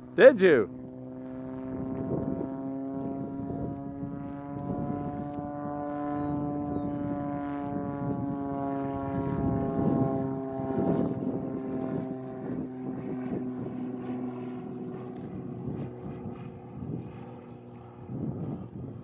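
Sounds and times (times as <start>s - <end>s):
propeller plane flyby: 0.0s - 19.0s.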